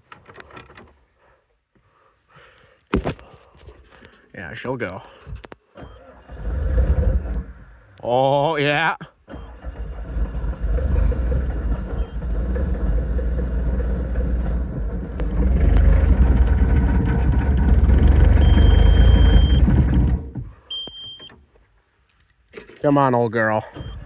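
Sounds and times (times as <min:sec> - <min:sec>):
diesel engine cranking: 0:05.0 - 0:08.0, 0:09.1 - 0:21.5, 0:22.4 - 0:24.0
high steady beep: 0:18.4 - 0:19.6.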